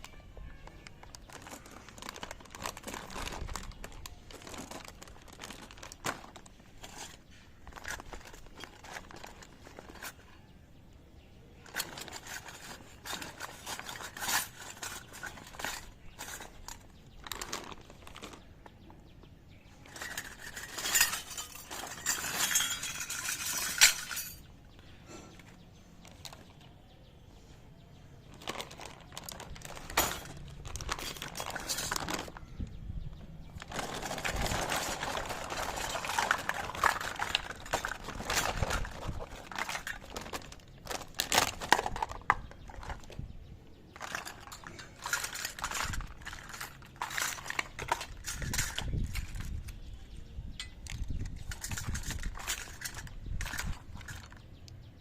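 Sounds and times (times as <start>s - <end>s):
packaging rustling and scraping: 0.0s - 10.5s, 11.6s - 18.9s, 19.5s - 24.4s, 28.2s - 32.7s, 33.5s - 43.2s, 43.9s - 54.5s
toy utensils clicking and clinking: 11.6s - 16.9s, 19.8s - 24.4s, 44.0s - 49.8s.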